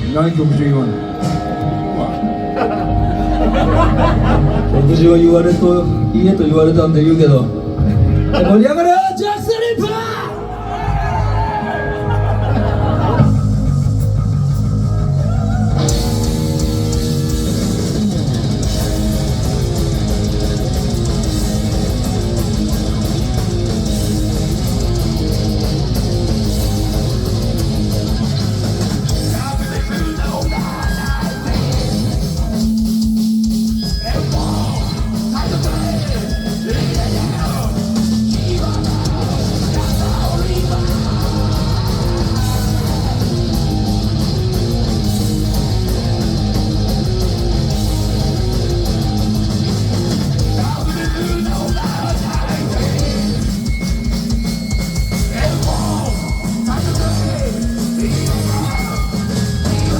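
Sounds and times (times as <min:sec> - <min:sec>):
electric guitar riffing: 0:00.0 - 0:59.9
heavy metal band playing: 0:00.0 - 0:59.9
drums and cymbals: 0:12.7 - 0:59.9.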